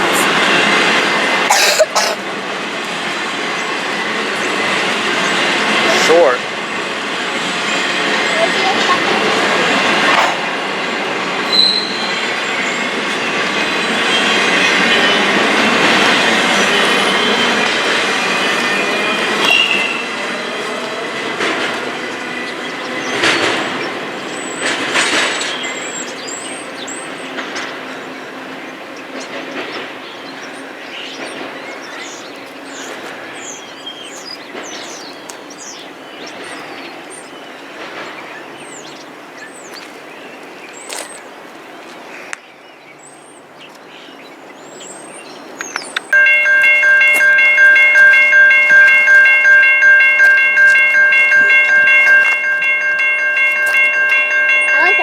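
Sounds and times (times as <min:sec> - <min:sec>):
high wheel squeals: 0:11.4 - 0:20.6.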